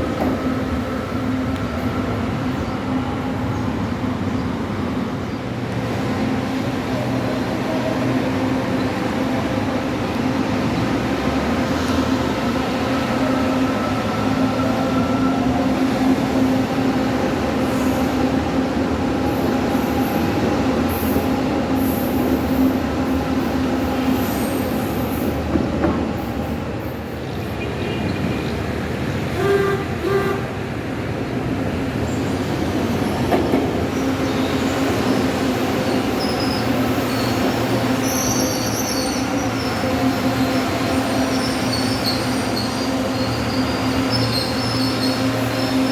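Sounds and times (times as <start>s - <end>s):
wheels squealing on rails: 19.3s - 25.5s, 32.8s - 45.9s.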